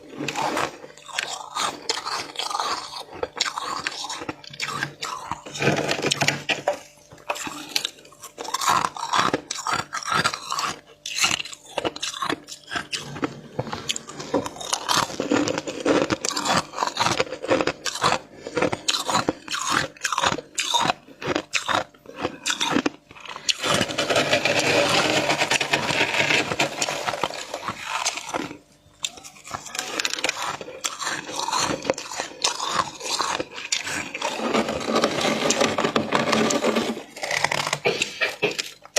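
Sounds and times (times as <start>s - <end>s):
frost crunching when chewed: 0.0s - 38.9s
frost scraping: 23.4s - 28.6s, 29.2s - 38.8s.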